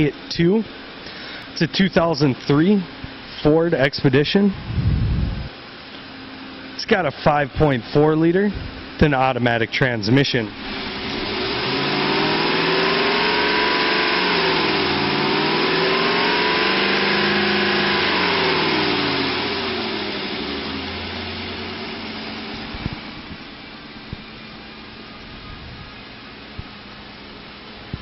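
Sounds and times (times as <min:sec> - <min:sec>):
car engine revving and idling: 0:10.4 - 0:24.3.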